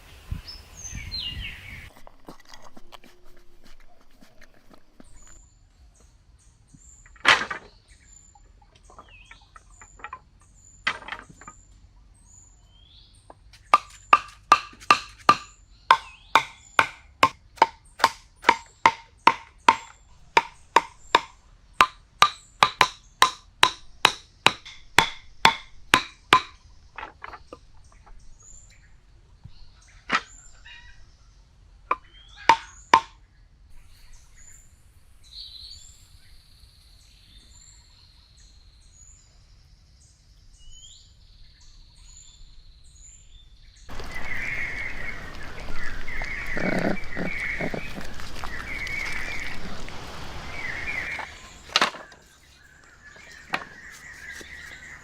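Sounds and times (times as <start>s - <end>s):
sharp ringing knocks: 13.8s - 26.6s.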